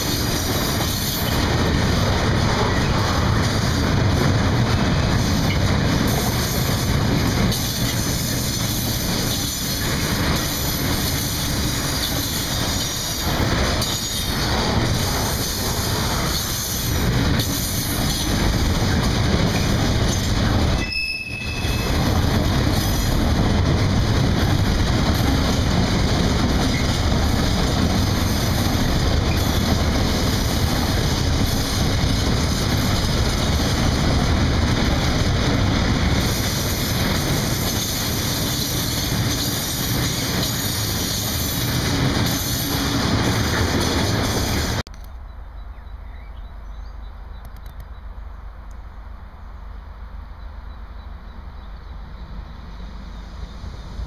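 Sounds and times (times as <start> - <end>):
train wheel clicks: 0.0 - 20.9
freight train rumbling past: 0.0 - 44.9, 48.0 - 54.0.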